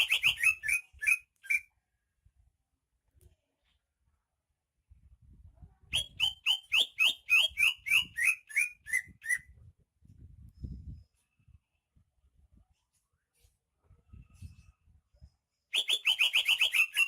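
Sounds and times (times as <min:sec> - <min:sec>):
bird singing whistled notes: 0:00.0 - 0:01.7, 0:05.9 - 0:09.5, 0:15.7 - 0:17.0.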